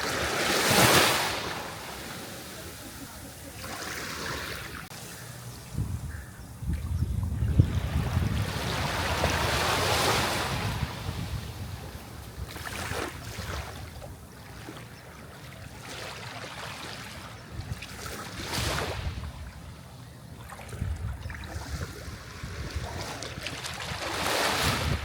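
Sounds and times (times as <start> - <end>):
sea waves breaking on shore: 0.0 - 5.2, 7.6 - 19.7, 20.4 - 25.0
wind rumble on microphone: 5.6 - 14.2, 17.4 - 19.8, 20.5 - 25.0.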